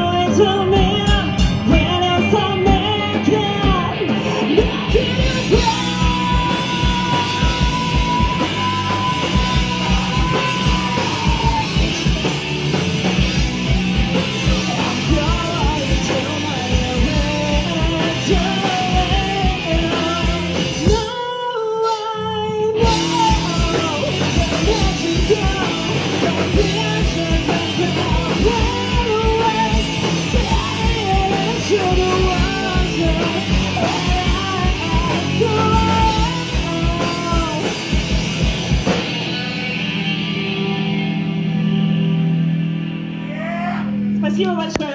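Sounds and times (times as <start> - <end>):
bass guitar: 0.0 - 21.3, 22.2 - 44.9
person singing: 0.0 - 38.0
electric guitar: 0.0 - 44.9
fast drum beat: 2.7 - 21.1, 22.8 - 39.3.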